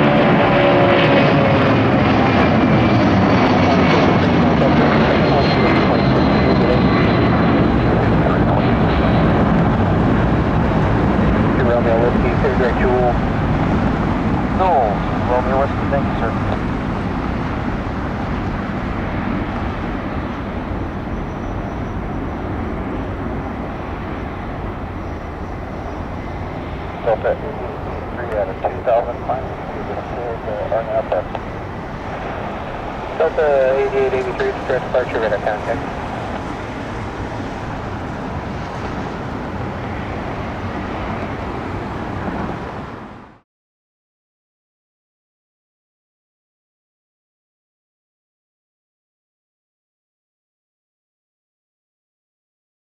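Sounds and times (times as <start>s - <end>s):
jet engine rumble: 0.0s - 43.4s
faint high whine: 11.4s - 13.7s, 14.6s - 16.7s, 17.8s - 42.4s.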